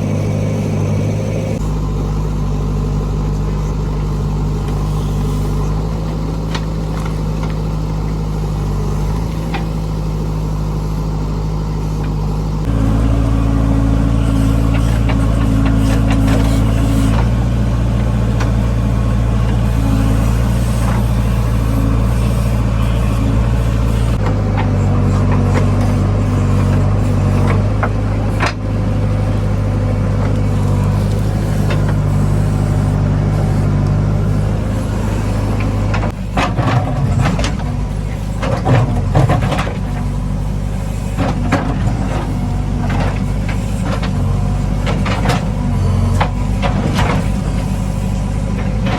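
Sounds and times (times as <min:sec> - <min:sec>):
diesel engine running under load: 0:00.0 - 0:48.9.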